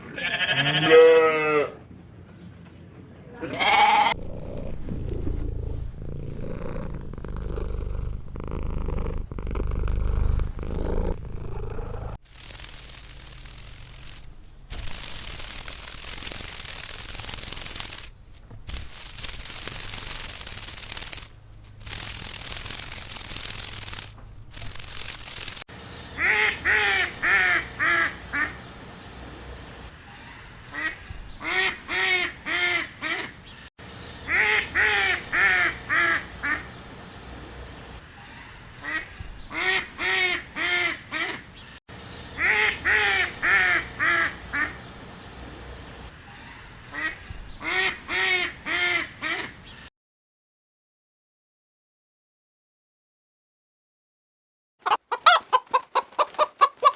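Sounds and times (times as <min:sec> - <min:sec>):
duck quacking: 0:26.2 - 0:28.6, 0:34.2 - 0:36.7, 0:38.8 - 0:41.5, 0:42.3 - 0:44.9, 0:46.4 - 0:49.6
long hissing noise: 0:33.8 - 0:38.0, 0:41.9 - 0:46.4.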